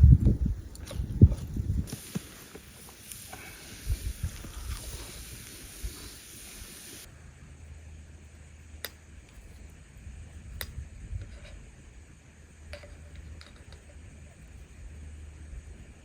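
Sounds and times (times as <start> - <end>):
burning wood popping: 0.0 - 7.1
campfire crackling: 0.0 - 7.1.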